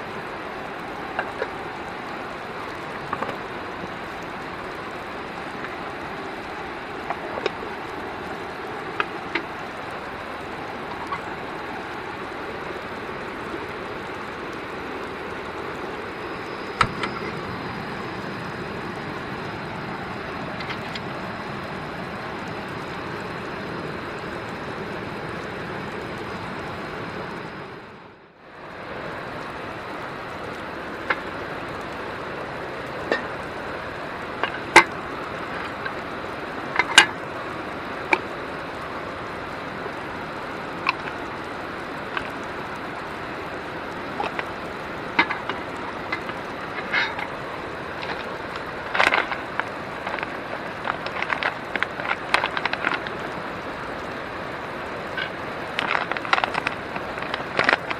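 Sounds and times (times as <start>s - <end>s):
river rushing: 0.0s - 57.9s
sharp clicks and knocks: 44.1s - 47.4s.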